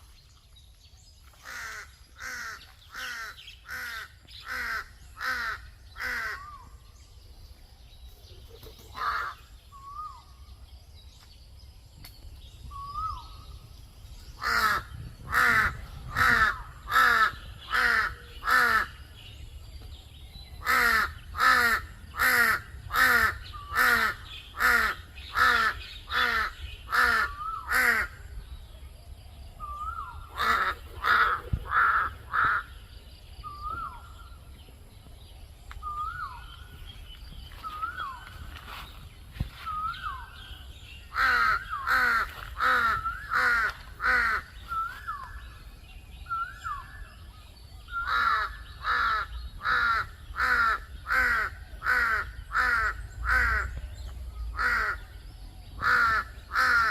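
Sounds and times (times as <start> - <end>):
crow cawing: 30.4 - 32.7, 48.1 - 53.7, 54.6 - 55.0, 55.8 - 56.9.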